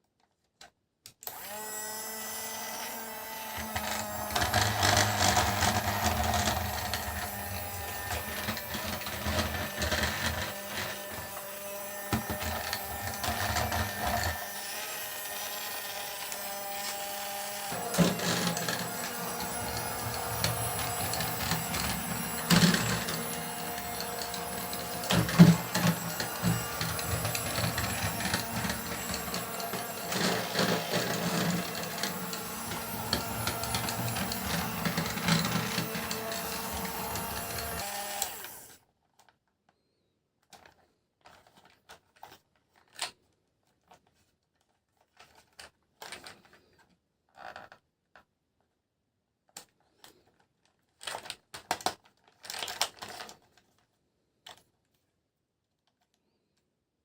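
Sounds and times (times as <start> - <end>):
small motor whirring and clattering: 1.2 - 39.3, 51.0 - 53.6.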